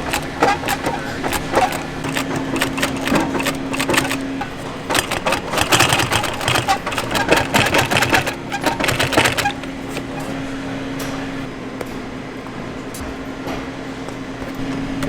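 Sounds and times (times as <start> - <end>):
sewing machine stitching leather: 0.0 - 10.5.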